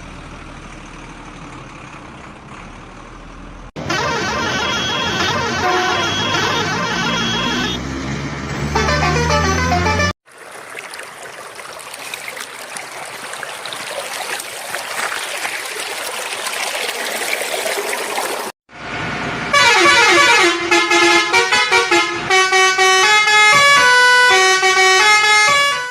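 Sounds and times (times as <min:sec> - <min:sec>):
vehicle horn honks: 0:03.8 - 0:07.8, 0:08.6 - 0:10.1, 0:19.5 - 0:25.9.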